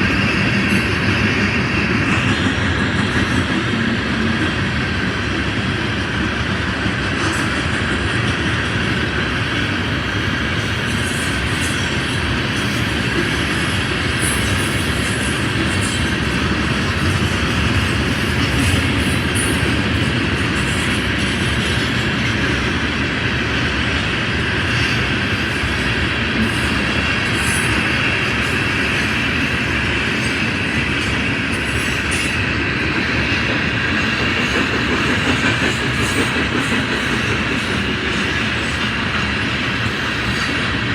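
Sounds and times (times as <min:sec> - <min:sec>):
rumble of train wheels on rail: 0:00.0 - 0:40.9.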